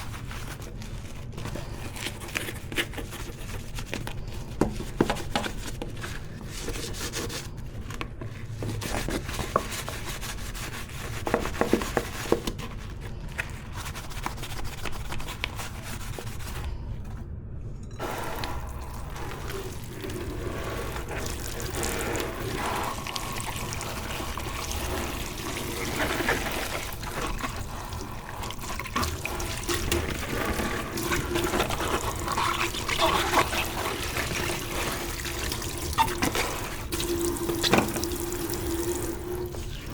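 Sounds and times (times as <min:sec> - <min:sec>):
tap water running: 0:18.0 - 0:39.9.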